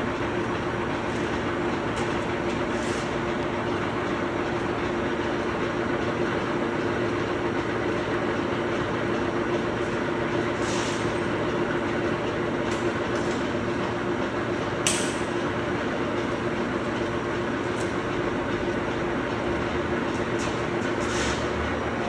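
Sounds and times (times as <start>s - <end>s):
industrial machinery hum: 0.0s - 22.0s
sharp click: 14.8s - 15.3s.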